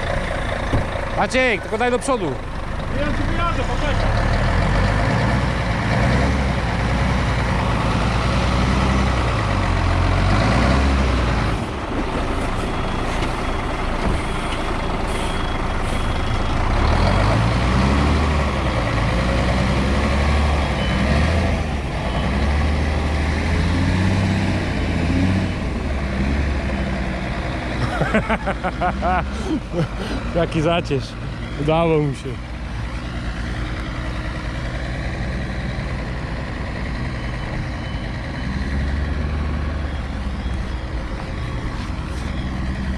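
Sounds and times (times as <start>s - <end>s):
truck diesel engine revving: 0.0s - 42.9s
faint beeping: 35.3s - 42.9s.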